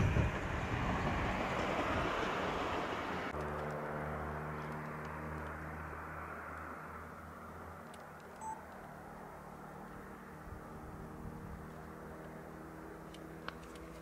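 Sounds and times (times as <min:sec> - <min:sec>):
train rushing: 0:00.0 - 0:03.3.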